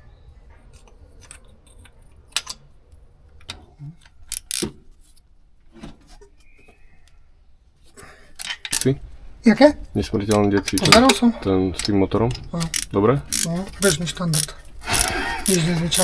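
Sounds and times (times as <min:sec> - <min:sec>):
sharp metallic clicks: 0:04.3 - 0:04.7, 0:12.5 - 0:16.0.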